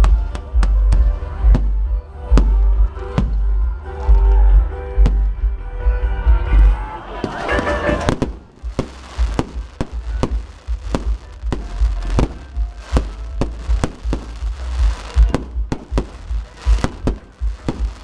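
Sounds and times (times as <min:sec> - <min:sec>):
fireworks bangs and pops: 0:00.0 - 0:04.3, 0:07.2 - 0:18.0
deep booming rumble: 0:08.1 - 0:18.0.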